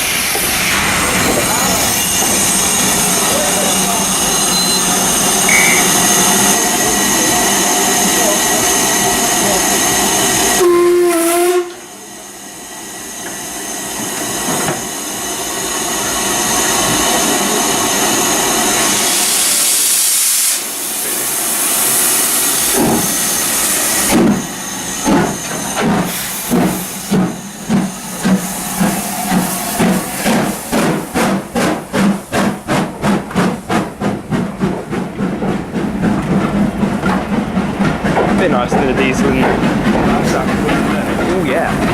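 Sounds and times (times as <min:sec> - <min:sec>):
steam hissing: 0:00.0 - 0:41.9
steam locomotive whistle: 0:04.2 - 0:06.1, 0:10.5 - 0:12.0
locomotive exhaust beats: 0:24.1 - 0:41.9.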